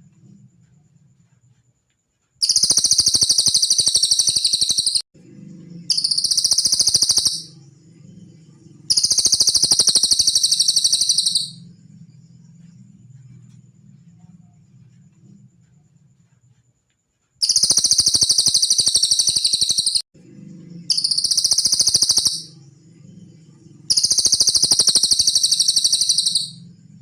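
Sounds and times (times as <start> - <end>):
songbird rattling trill: 2.4 - 5.0, 5.8 - 11.8, 17.4 - 20.1, 20.8 - 27.0.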